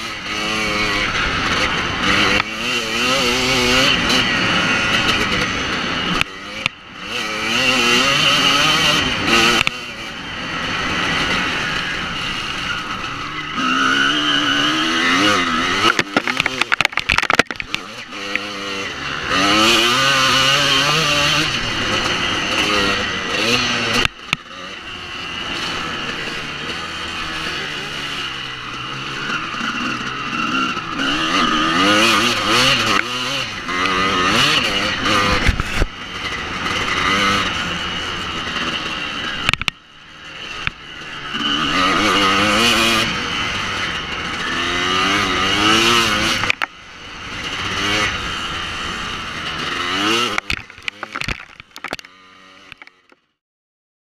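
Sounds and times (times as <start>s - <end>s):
motocross engine revving hard: 0.0s - 39.5s, 40.3s - 52.8s.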